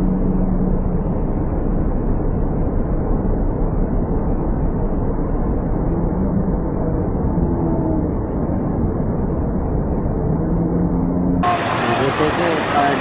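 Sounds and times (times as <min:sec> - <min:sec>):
river rapids roaring: 0:11.4 - 0:13.0.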